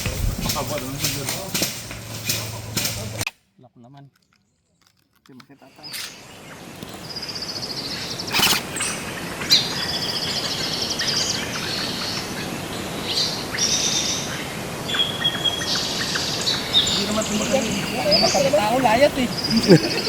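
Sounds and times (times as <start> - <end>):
outdoor background noise: 0.0 - 20.0
birds chirping and trilling: 5.5 - 20.0.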